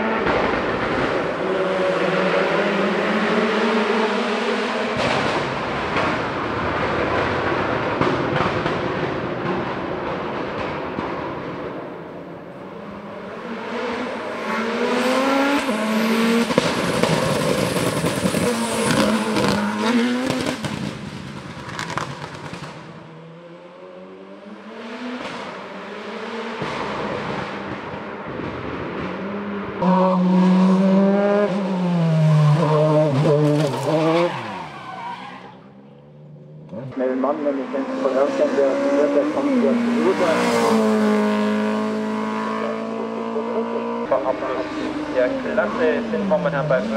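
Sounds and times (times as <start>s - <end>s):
race car engine accelerating: 12.6s - 34.8s, 36.2s - 46.9s.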